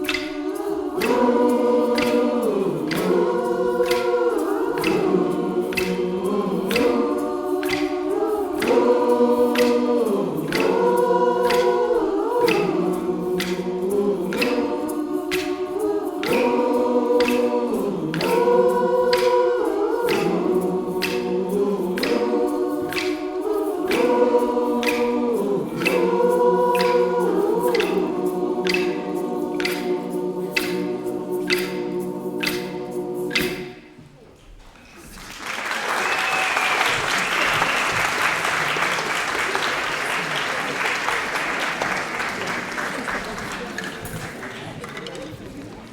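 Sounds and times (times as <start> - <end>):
choir singing in harmony: 0.0 - 34.2, 35.1 - 44.9
sharp rhythmic strokes: 0.0 - 34.2.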